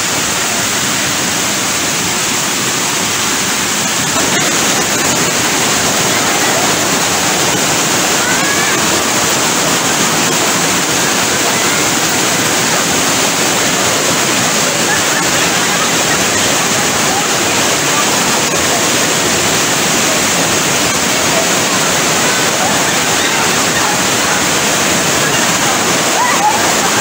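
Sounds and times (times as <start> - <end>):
water rushing over rocks: 0.0 - 27.0.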